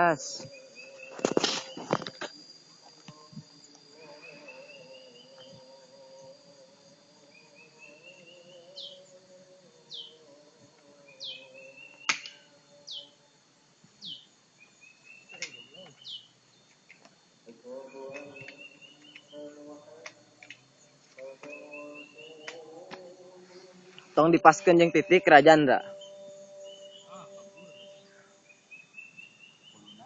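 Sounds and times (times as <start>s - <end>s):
buzzy bird trill: 0.0s - 2.1s, 3.2s - 6.6s, 7.2s - 9.2s, 9.8s - 13.2s, 14.0s - 16.4s, 21.2s - 30.0s
faint steady hum: 0.0s - 30.0s
songbird whistled notes: 11.1s - 13.1s, 25.8s - 30.0s.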